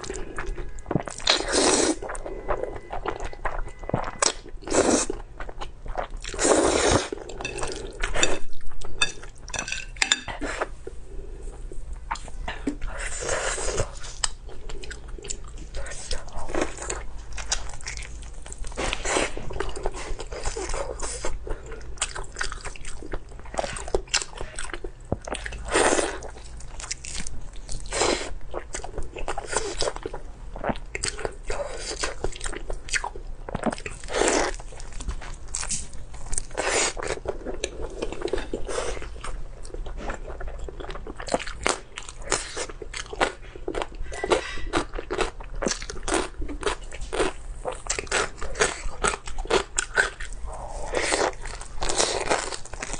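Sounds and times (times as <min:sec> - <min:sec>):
wet chewing and smacking: 0:28.5 - 0:52.9.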